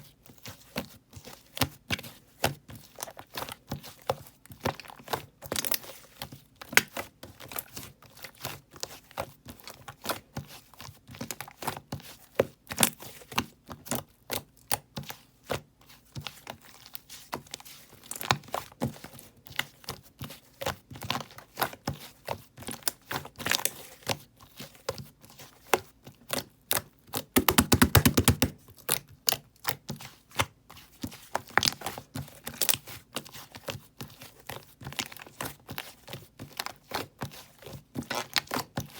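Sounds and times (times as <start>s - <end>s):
slime squeezed by hand: 27.4s - 28.5s.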